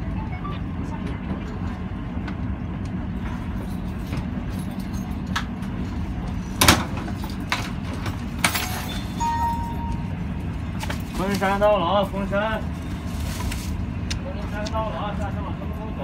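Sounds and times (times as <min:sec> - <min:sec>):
train rumble inside carriage: 0:00.0 - 0:16.0.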